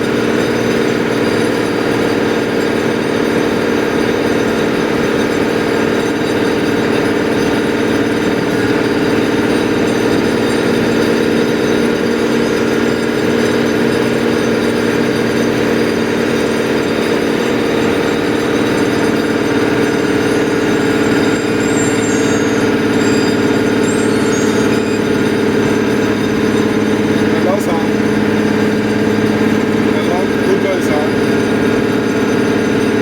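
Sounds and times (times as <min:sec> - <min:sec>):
heavy engine droning: 0:00.0 - 0:33.0.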